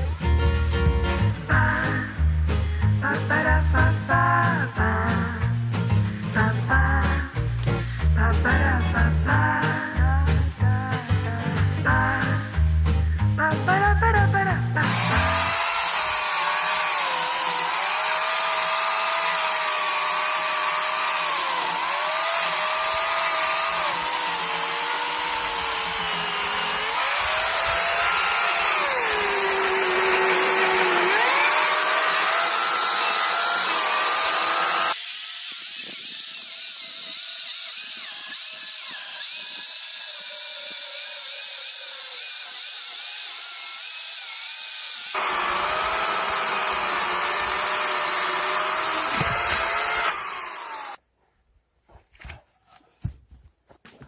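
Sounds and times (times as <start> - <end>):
chainsaw cutting logs: 14.8 - 51.0.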